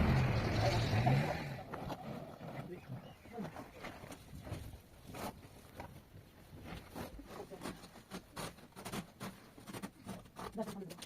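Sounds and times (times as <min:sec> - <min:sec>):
scraping and rustling: 0:03.4 - 0:11.0.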